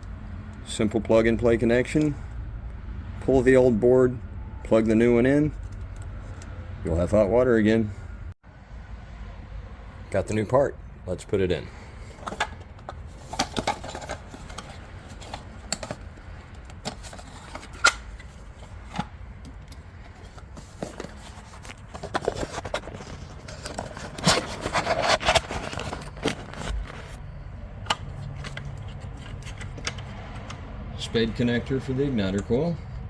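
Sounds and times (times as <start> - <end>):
clicks taps and scrapes of parts: 5.5 - 6.6, 12.0 - 27.2, 27.8 - 30.6.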